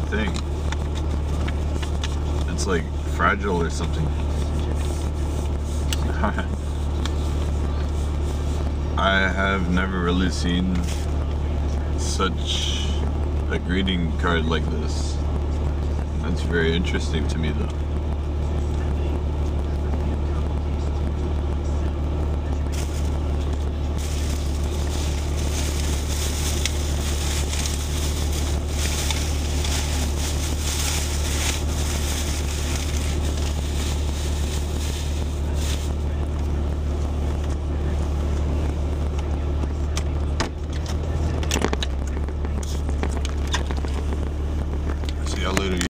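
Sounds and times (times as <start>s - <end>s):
car engine idling: 0.0s - 45.9s
paper crinkling: 24.0s - 36.2s.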